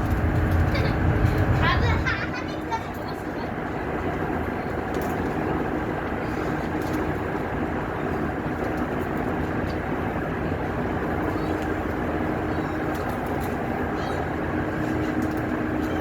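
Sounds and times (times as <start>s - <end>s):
faint constant hum: 0.0s - 16.0s
low mechanical rumble: 0.0s - 16.0s.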